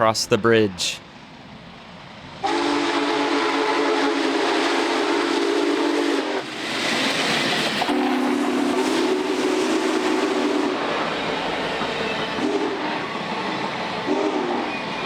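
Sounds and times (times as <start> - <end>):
steam locomotive hissing: 0.8 - 15.0
steam whistle blasts: 2.4 - 6.4, 7.8 - 10.9, 12.4 - 12.9, 14.0 - 15.0.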